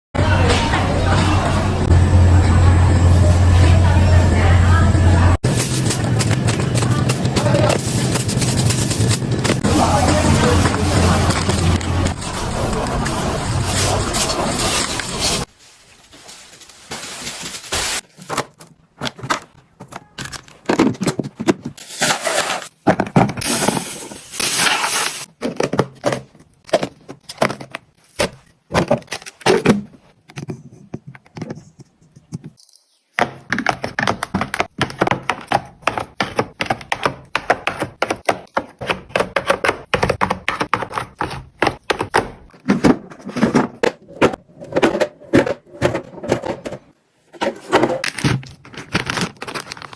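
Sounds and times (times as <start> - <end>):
plastic containers clicking and clacking: 22.8 - 23.7, 25.3 - 32.6, 33.2 - 49.9.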